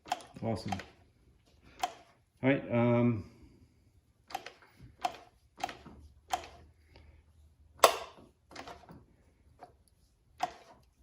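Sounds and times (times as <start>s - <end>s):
sharp metallic clicks: 0.0s - 1.0s.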